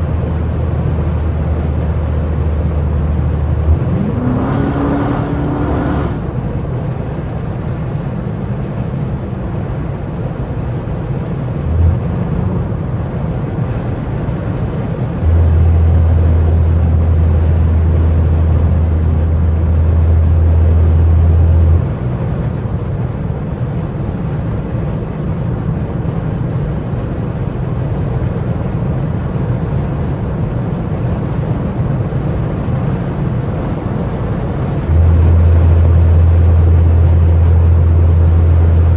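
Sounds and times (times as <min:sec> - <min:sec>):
car exhaust rumble from inside: 0:00.0 - 0:38.9.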